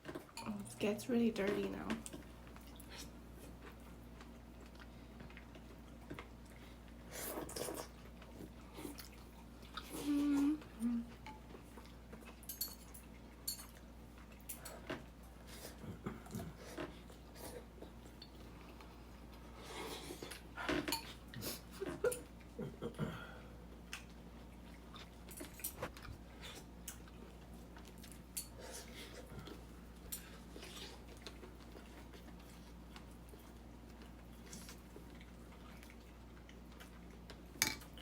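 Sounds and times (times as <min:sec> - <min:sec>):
utensils clinking against bowl: 0:12.5 - 0:13.8.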